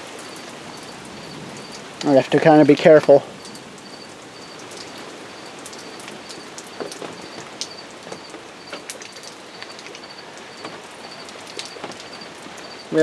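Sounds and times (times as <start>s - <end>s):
heavy rain splashing off awning: 0.0s - 13.0s
faint high chirp: 3.4s - 13.0s.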